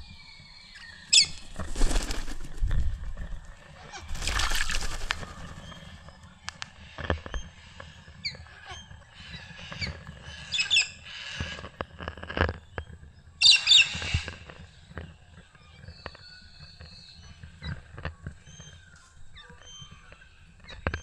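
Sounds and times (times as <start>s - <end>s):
wings fluttering and splashing: 1.1s - 6.2s
bird chirps and clicks: 11.5s - 21.0s.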